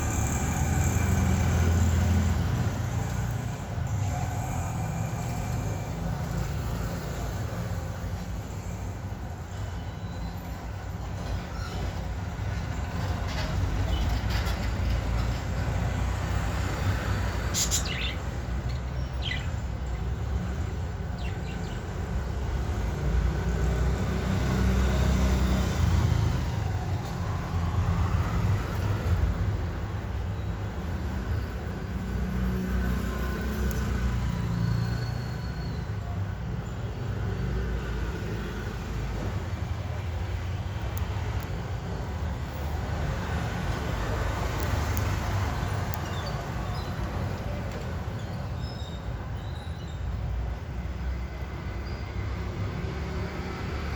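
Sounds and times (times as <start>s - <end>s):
budgie chirps: 17.5s - 18.2s.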